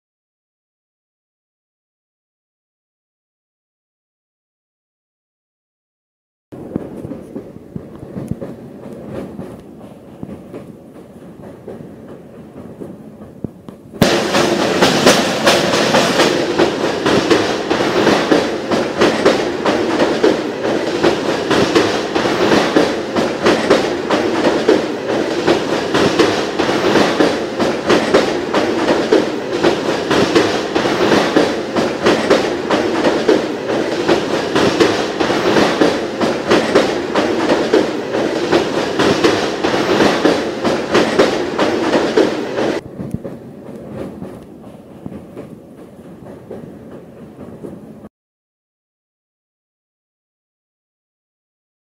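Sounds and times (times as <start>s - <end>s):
train wheels rumbling over bridge: 6.6s - 48.1s
sharp knocks: 14.0s - 42.3s.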